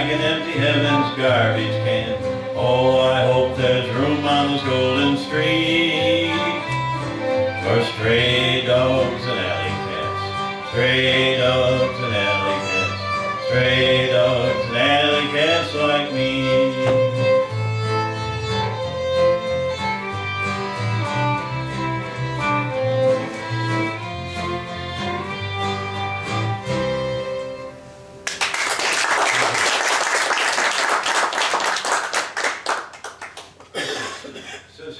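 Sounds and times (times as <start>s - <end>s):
person singing: 0.0s - 17.5s
fiddle and acoustic guitar: 0.0s - 28.2s
audience applause: 28.2s - 33.9s.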